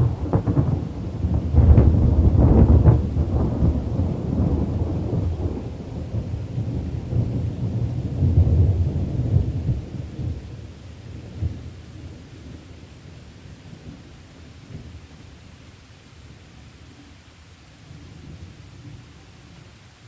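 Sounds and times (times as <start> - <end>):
thunder rumbling: 0.0 - 15.0
rain hiss: 0.0 - 20.0.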